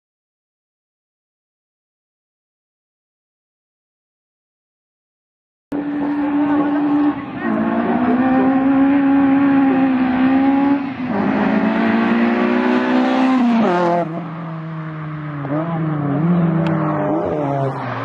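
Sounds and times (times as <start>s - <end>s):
car engine revving: 5.7s - 18.0s.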